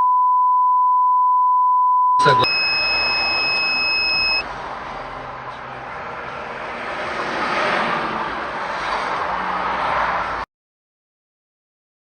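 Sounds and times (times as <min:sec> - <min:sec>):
car road and wind noise: 0:02.4 - 0:10.4.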